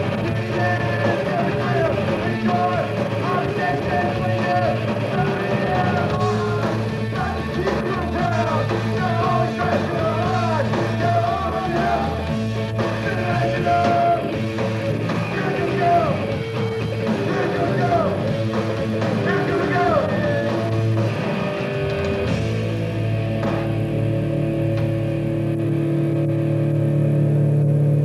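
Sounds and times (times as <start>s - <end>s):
person singing and shouting: 0.0s - 12.3s, 12.9s - 14.4s, 15.1s - 16.3s, 17.0s - 18.3s, 19.1s - 20.7s
punk rock band playing live: 0.0s - 28.0s.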